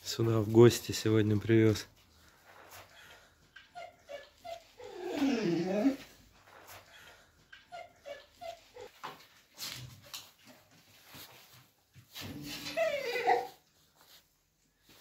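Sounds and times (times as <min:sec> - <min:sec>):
dog whining: 0:03.6 - 0:06.2, 0:12.5 - 0:13.6.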